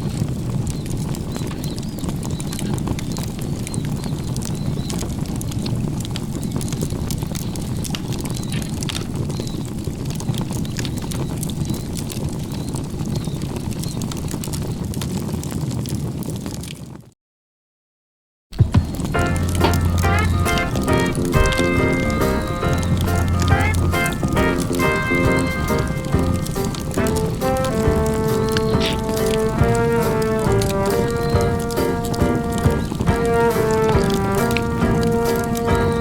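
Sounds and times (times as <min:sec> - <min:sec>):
small crackles and clicks: 0:00.0 - 0:17.1, 0:18.6 - 0:36.0
steady low rumble: 0:18.6 - 0:35.2.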